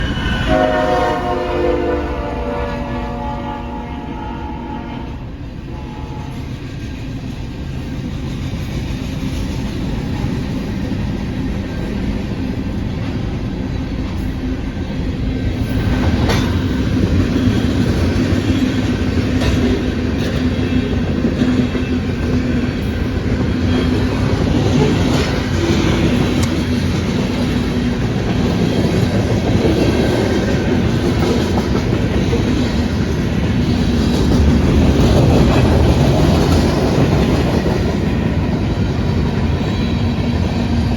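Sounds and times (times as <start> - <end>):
freight train rumble: 0.0 - 40.9
wheels clacking over rail joints: 15.5 - 40.9.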